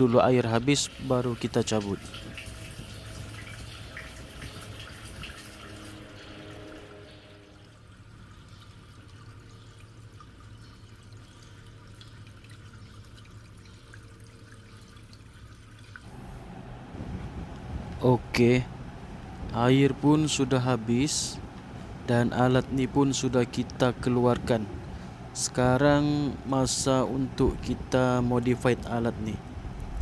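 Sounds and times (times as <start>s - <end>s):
water trickling down drain: 0.0s - 16.3s.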